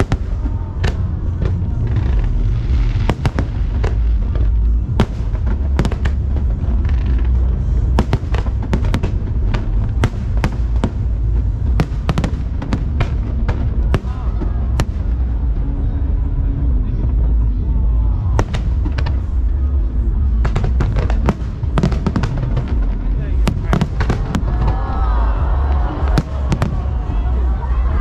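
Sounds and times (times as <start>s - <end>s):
fireworks bangs and crackles: 0.0s - 28.0s
low rumble: 0.0s - 28.0s
music playing: 0.0s - 28.0s.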